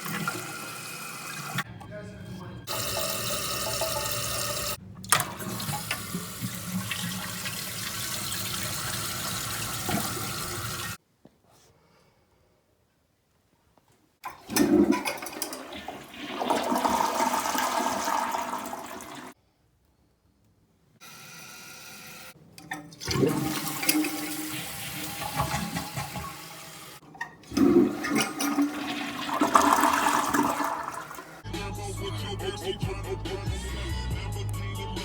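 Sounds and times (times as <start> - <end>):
toilet flushing: 0.0 - 1.7, 2.6 - 11.0, 14.2 - 19.4, 21.0 - 31.4.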